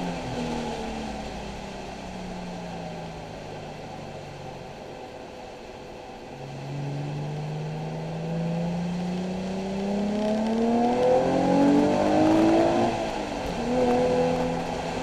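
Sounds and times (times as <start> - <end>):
car engine accelerating hard: 6.2 - 15.0.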